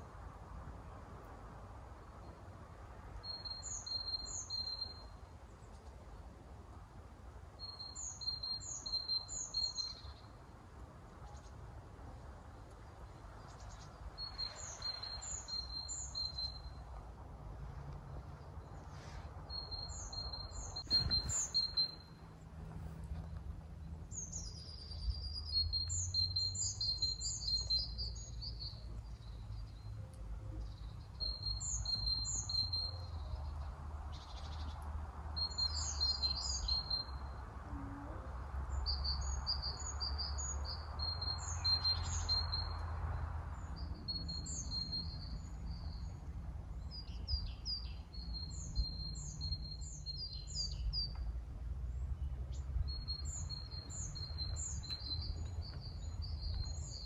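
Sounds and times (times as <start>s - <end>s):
songbirds chirping: 0.0s - 57.0s
steady low rumble: 20.4s - 24.2s.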